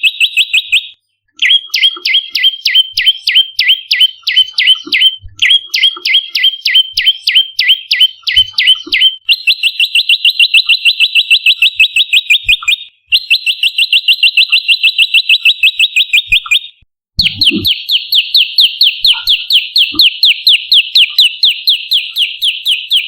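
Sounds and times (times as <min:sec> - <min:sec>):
bird chip notes: 0:17.2 - 0:18.1, 0:18.9 - 0:20.2
bird rattling trill: 0:17.2 - 0:23.0.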